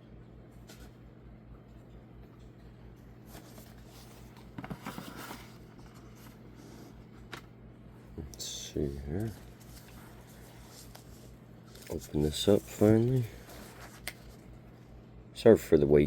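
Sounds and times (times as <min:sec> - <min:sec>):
steady low hum: 0:00.0 - 0:16.0
cardboard packaging rustling: 0:03.2 - 0:07.4, 0:09.0 - 0:14.7.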